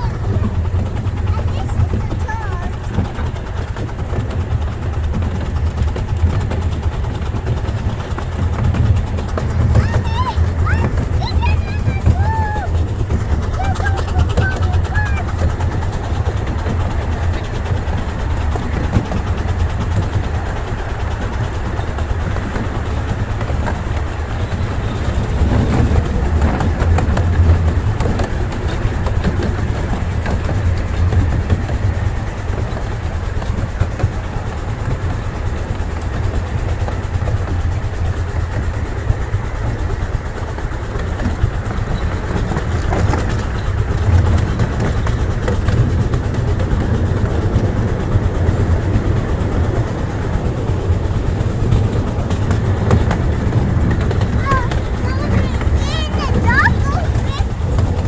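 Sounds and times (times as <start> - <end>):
train wheels rumbling on rail: 0.0 - 58.0
track clicks: 46.7 - 58.0.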